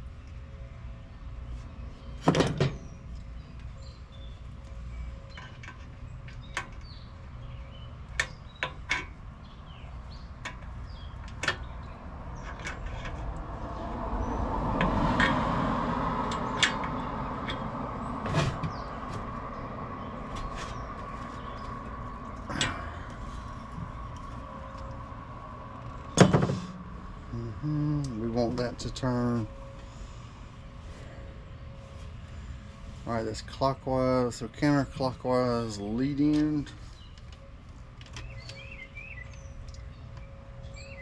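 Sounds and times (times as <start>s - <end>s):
vehicle passing whoosh: 13.4s - 28.8s
steady low hum: 13.4s - 38.4s.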